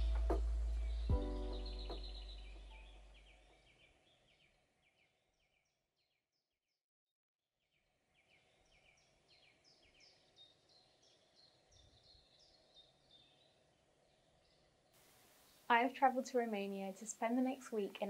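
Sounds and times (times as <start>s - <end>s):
bird chirping: 0.0s - 6.1s, 8.1s - 18.0s
faint background hiss: 14.0s - 18.0s.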